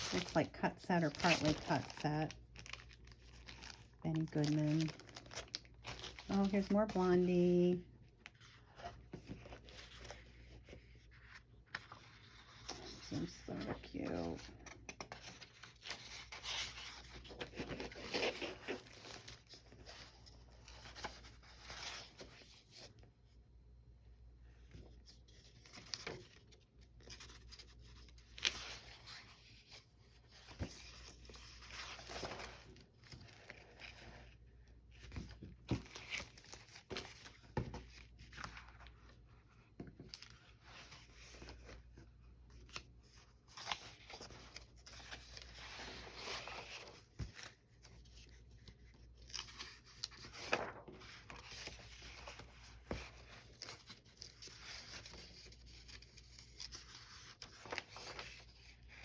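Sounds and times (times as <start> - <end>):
paper rustling and scraping: 0.0 - 2.0, 8.4 - 23.0, 43.5 - 59.0.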